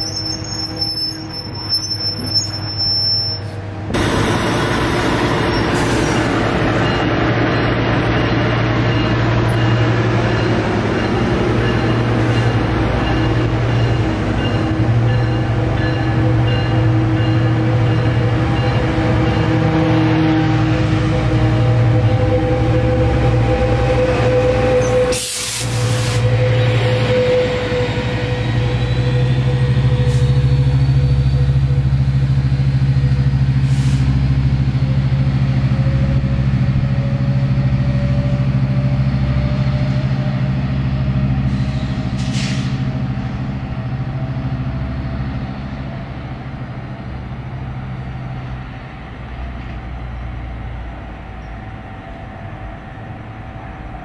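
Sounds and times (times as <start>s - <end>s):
diesel locomotive engine drone: 0.0s - 54.0s
brief hiss: 41.6s - 42.8s.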